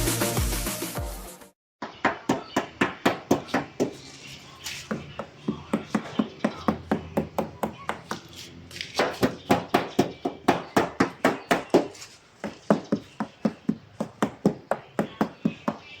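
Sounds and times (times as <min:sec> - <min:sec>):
rapid regular knocking: 0:09.0 - 0:16.0.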